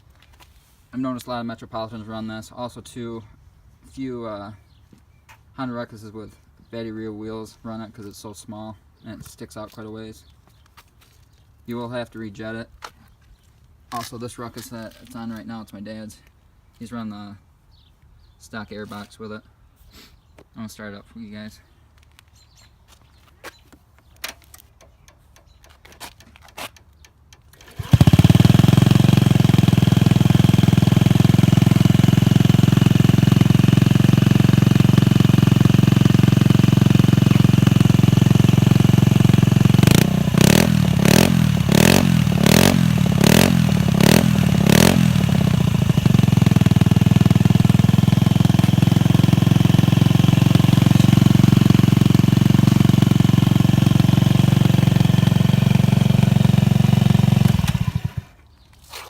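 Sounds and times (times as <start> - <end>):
scooter starter clicks: 24.2 - 29.2, 57.4 - 58.2
scooter engine idling and revving: 27.6 - 58.4.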